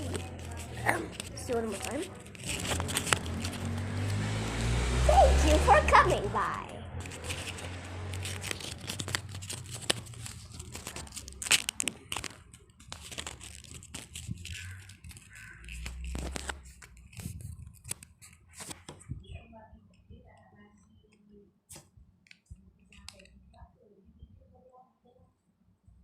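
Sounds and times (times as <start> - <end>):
paper crinkling: 0.0 - 19.0.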